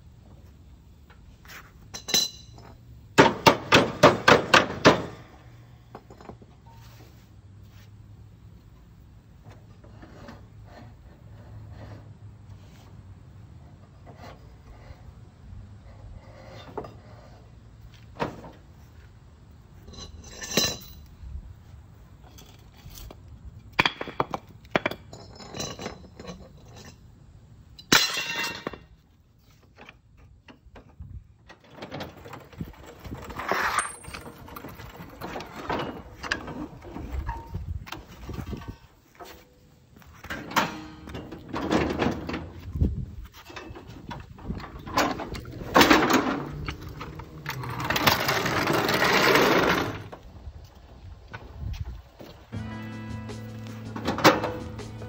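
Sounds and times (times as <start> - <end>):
metal tools clinking and knocking: 1.9 - 2.8, 19.8 - 21.1, 24.0 - 27.1, 27.8 - 28.9, 29.8 - 39.4.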